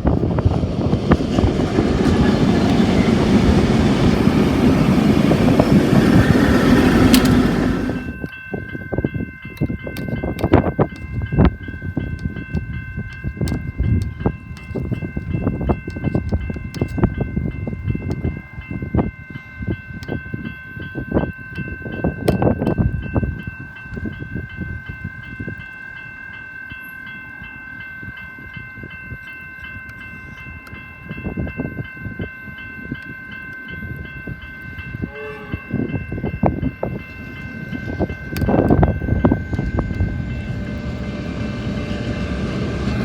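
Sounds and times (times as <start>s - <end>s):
freight train wagons clattering: 0.0s - 18.3s, 32.8s - 43.0s
high-pitched ringing tone: 18.8s - 43.0s.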